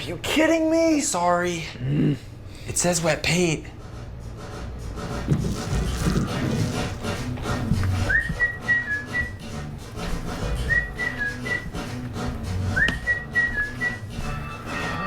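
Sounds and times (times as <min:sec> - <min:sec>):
low background beat: 0:04.3 - 0:14.9
whistled tune: 0:07.9 - 0:09.7, 0:10.4 - 0:15.0.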